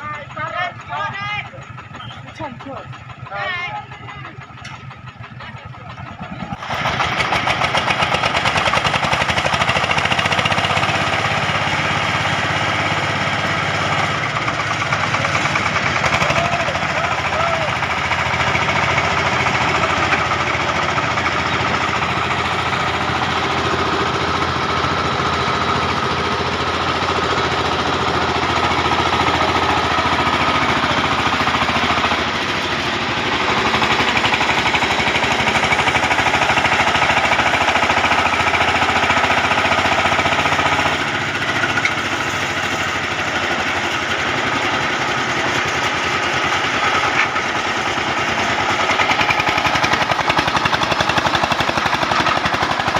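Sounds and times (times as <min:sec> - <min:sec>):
diesel tractor engine chugging: 0:00.0 - 0:52.9.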